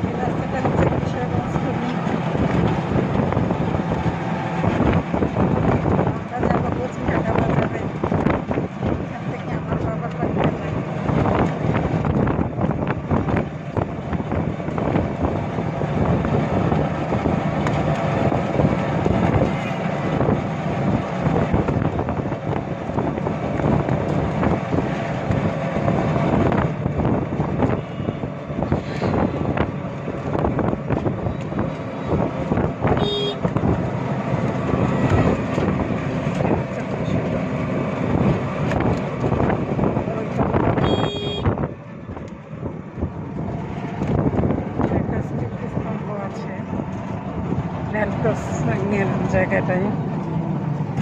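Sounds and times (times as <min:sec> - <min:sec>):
wind on microphone: 0:00.0 - 0:36.8, 0:38.0 - 0:45.9
auto-rickshaw engine running: 0:00.0 - 0:51.0
horn toot: 0:33.0 - 0:33.5, 0:40.8 - 0:41.6.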